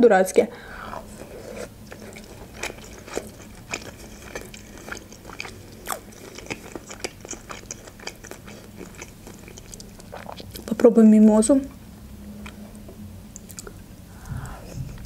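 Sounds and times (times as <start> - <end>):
wet chewing clicks and smacks: 1.8 - 10.7, 13.3 - 15.0.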